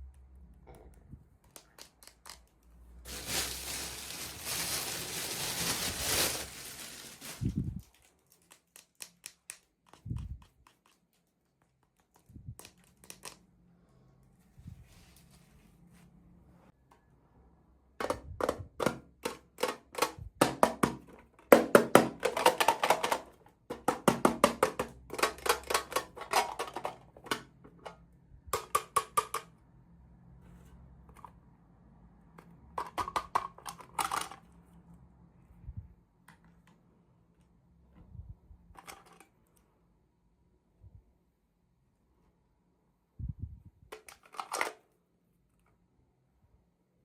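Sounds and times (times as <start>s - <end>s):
plastic pieces clicking and crackling: 22.2s - 27.5s, 32.8s - 34.4s.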